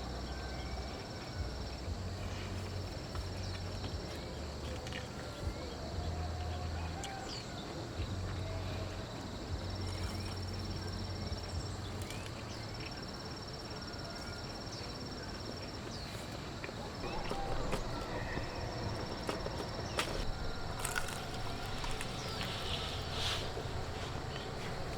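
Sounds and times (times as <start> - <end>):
insect trilling: 0.1 - 24.9
steady hiss: 7.4 - 24.9.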